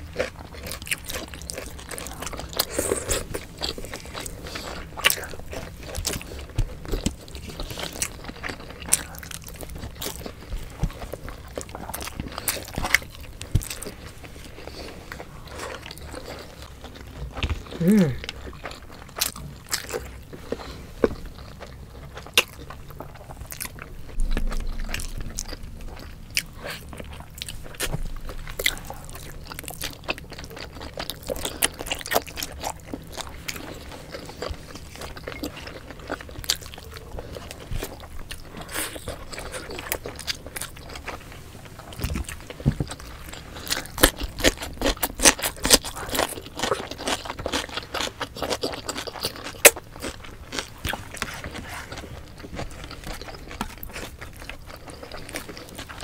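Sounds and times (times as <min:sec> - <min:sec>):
people chewing food: 0:00.0 - 0:56.0
crunchy bites: 0:41.7 - 0:56.0.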